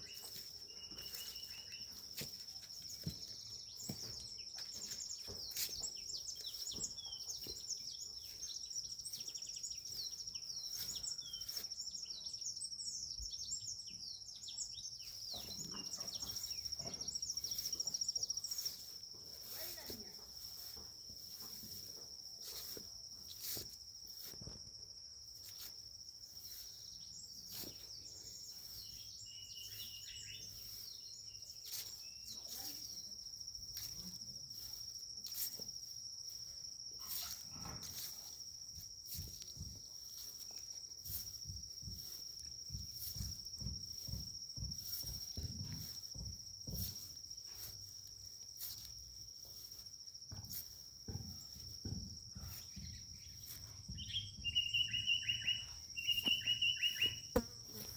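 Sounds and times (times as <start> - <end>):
footsteps knocking and thumping: 0.0 - 8.4, 15.2 - 24.9, 37.4 - 54.8, 55.8 - 57.9
insect trilling: 52.5 - 57.9.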